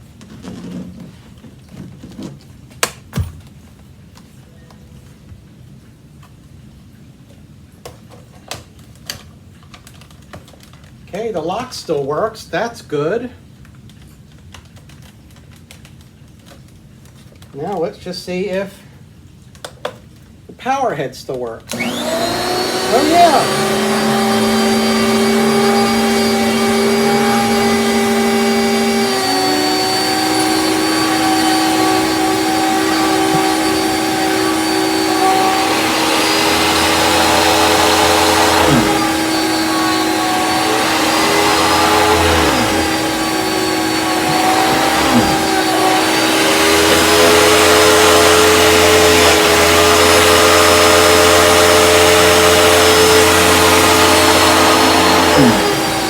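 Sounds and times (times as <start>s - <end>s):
rushing suction noise: 21.7s - 56.0s
vacuum cleaner running: 21.7s - 56.0s.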